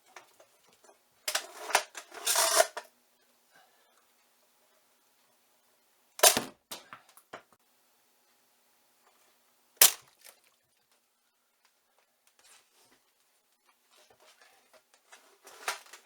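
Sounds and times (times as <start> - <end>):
toy blaster pops: 6.2 - 6.5, 9.8 - 10.0.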